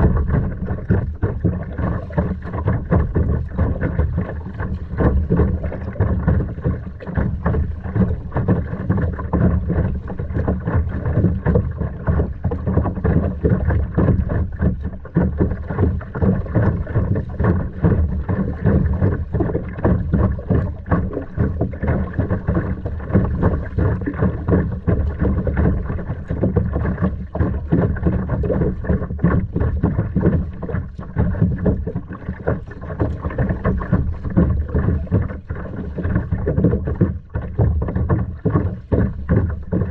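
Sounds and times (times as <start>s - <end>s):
wind buffeting microphone: 0.0s - 14.8s
water around kayak: 0.0s - 39.9s.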